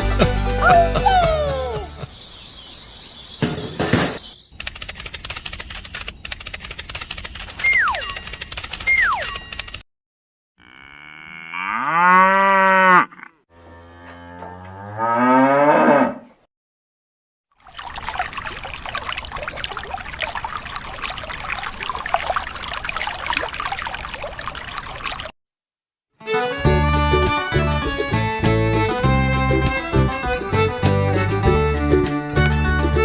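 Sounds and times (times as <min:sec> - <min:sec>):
cattle mooing: 0:10.6 - 0:16.4
water rushing and splashing: 0:17.6 - 0:25.4.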